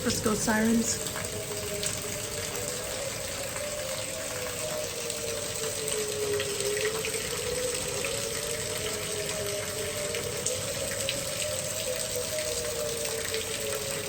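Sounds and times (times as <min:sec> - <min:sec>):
heavy rain hissing: 0:00.0 - 0:04.0
distant warning sirens wailing: 0:00.0 - 0:14.0.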